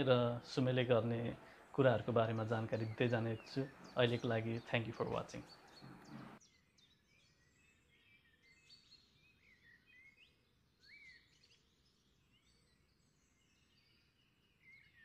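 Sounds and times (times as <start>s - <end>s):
low steady hiss: 0.0s - 6.4s
birds chirping and whistling: 1.2s - 15.0s.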